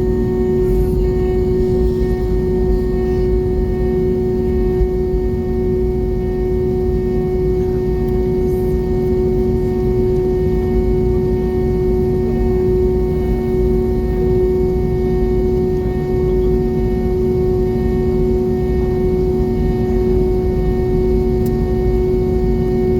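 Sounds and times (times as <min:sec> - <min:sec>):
airliner cabin rumble: 0:00.0 - 0:14.7
jet engine drone: 0:00.0 - 0:22.9.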